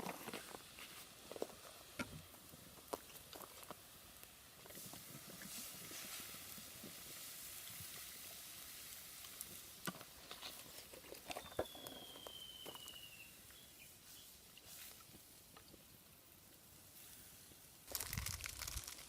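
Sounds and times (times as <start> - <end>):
bonfire crackling and popping: 0.0 - 13.6, 14.5 - 19.0
thin falling whistle: 11.4 - 13.7.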